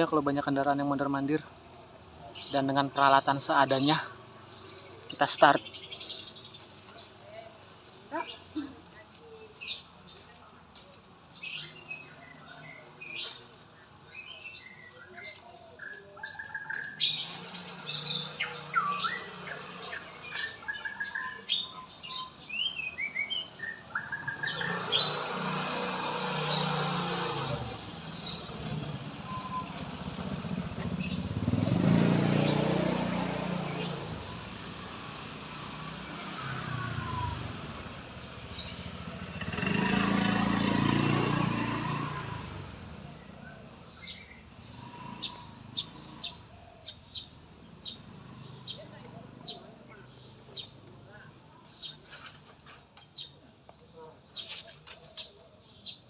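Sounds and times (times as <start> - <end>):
passing road traffic: 0.0 - 56.0
songbird whistles and chirps: 28.0 - 31.3.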